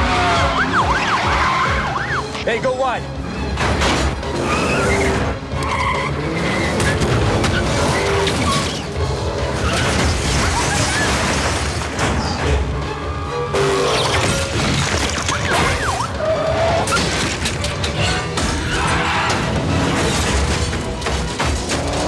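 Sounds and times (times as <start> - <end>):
driving score music: 0.0 - 7.9
car engines: 0.0 - 14.0.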